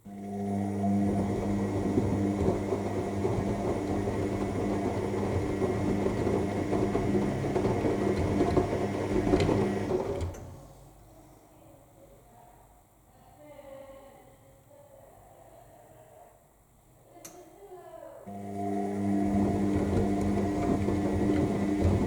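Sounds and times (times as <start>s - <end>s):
washing machine motor humming: 0.0s - 10.6s, 18.3s - 22.0s
wet laundry churning: 0.1s - 10.5s, 18.3s - 22.0s.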